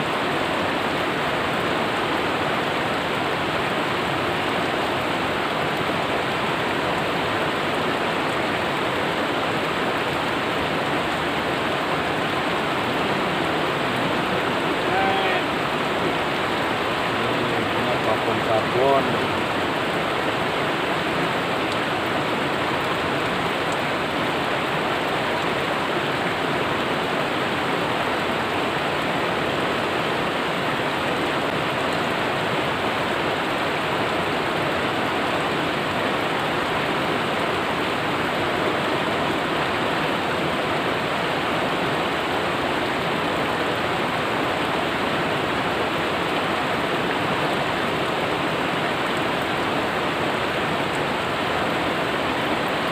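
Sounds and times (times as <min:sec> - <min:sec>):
river water rushing: 0:00.0 - 0:52.9.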